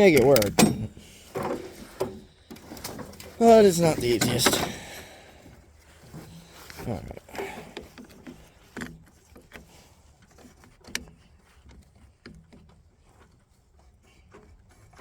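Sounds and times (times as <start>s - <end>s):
cable clamps clicking: 0.0s - 5.1s.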